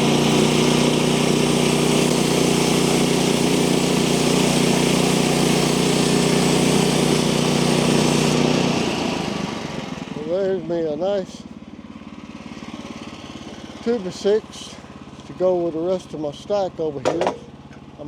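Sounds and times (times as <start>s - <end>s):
band blade cutting wood: 0.0s - 9.0s
small engine running: 0.0s - 18.0s.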